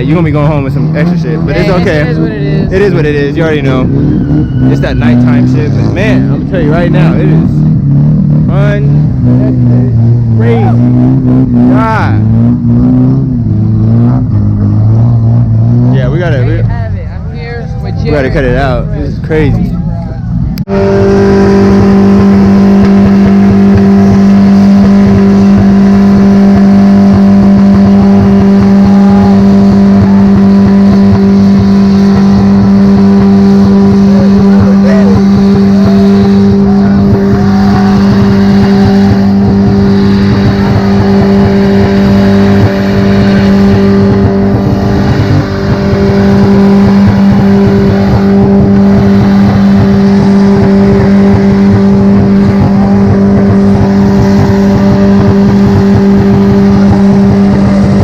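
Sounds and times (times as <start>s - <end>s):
car engine at high revs: 0.0s - 58.0s.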